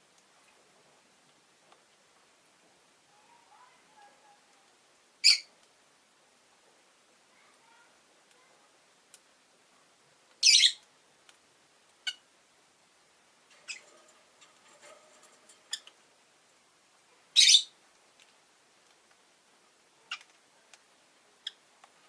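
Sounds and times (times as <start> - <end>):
shrill lovebird calls: 5.2 - 5.5, 10.4 - 10.8, 13.6 - 13.9, 17.4 - 17.7
soft bird chirps and clicks: 20.1 - 21.9.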